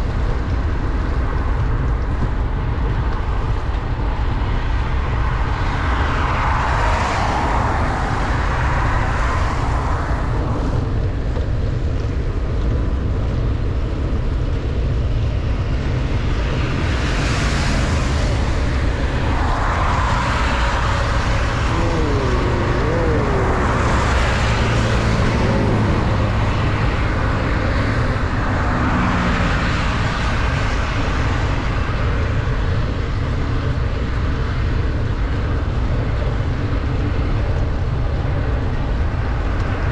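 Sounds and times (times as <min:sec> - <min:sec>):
wind rumbling on microphone: 0:00.0 - 0:39.9
heavy rain: 0:17.9 - 0:29.0.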